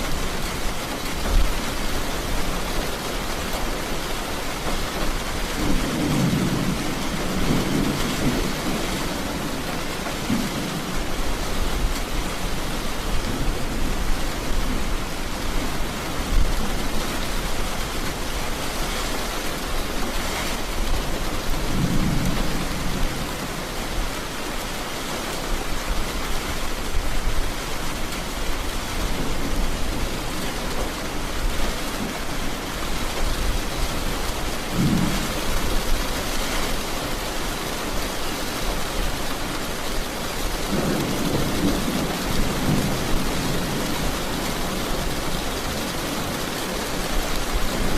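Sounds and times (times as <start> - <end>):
heavy rain falling: 0.0 - 47.9
thunder rumbling: 5.4 - 15.4, 20.7 - 23.9, 26.8 - 37.2.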